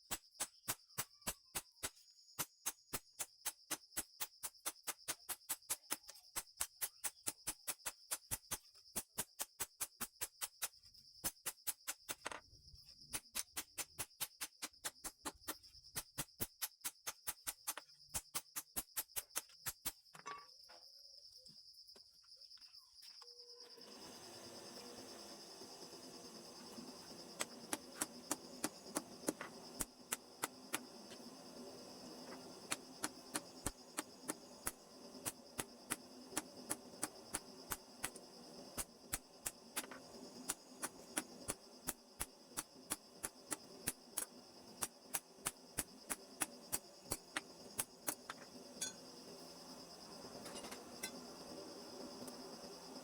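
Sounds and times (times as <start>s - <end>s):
steady high-pitched whine: 23.6s - 53.0s.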